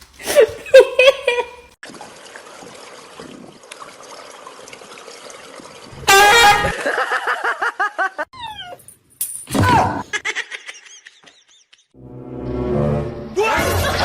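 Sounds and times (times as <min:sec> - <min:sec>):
loud honk: 0:06.0 - 0:06.8.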